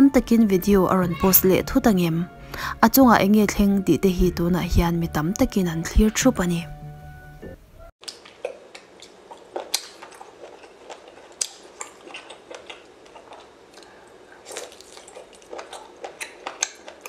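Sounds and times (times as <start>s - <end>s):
biting and chewing: 8.0s - 17.0s.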